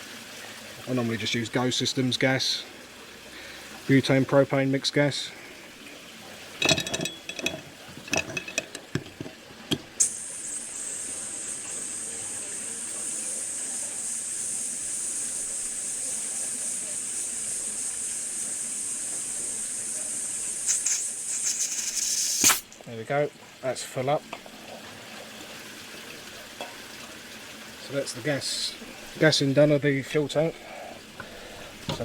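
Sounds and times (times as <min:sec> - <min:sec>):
gas hissing: 0:10.0 - 0:22.7.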